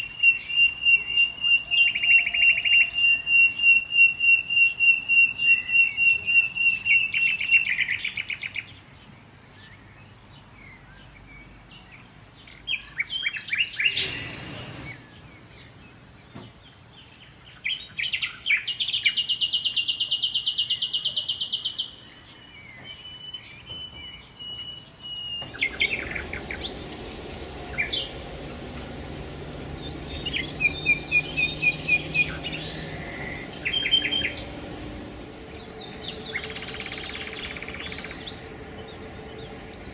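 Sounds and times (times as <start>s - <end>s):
loud buzzy bird trill: 0.0s - 8.8s, 12.7s - 15.9s, 22.6s - 39.9s
songbirds singing and chirping: 0.0s - 39.9s
low background hiss: 24.2s - 39.9s.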